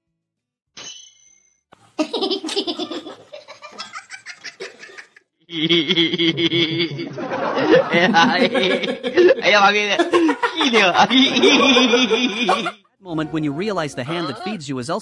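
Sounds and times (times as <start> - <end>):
person laughing hard: 2.0 - 12.8.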